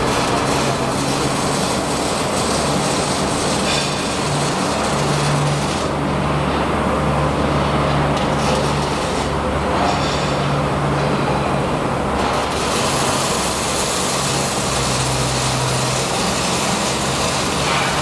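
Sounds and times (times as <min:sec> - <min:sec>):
welding arc crackling: 0:00.0 - 0:06.1, 0:08.2 - 0:09.4, 0:12.1 - 0:18.0.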